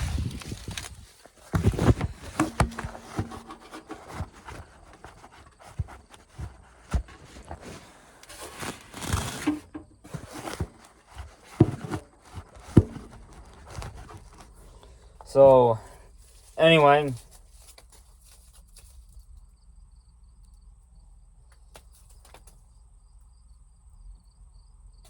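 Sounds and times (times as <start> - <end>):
knocks and clicks of corn ears: 0.0 - 15.4, 17.0 - 19.2, 21.5 - 22.7
rustling through dry corn stubble: 0.0 - 19.4.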